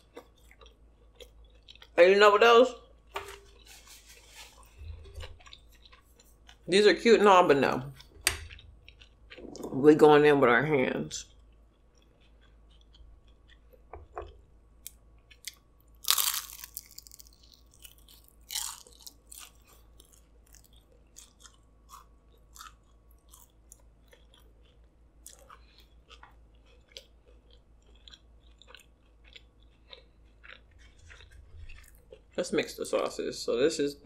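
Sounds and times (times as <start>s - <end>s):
crunchy chewing: 0.0s - 2.0s, 2.9s - 6.8s, 7.9s - 9.8s, 11.2s - 33.1s
crunching bite: 11.2s - 32.4s.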